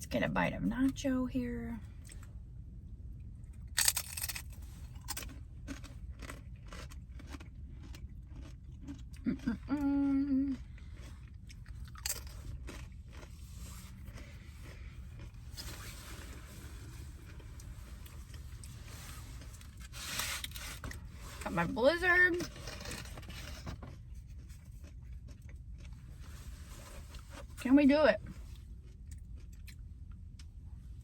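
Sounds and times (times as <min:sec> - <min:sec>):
chewing crunchy chips: 0:03.4 - 0:18.8, 0:22.4 - 0:26.4, 0:28.3 - 0:30.6.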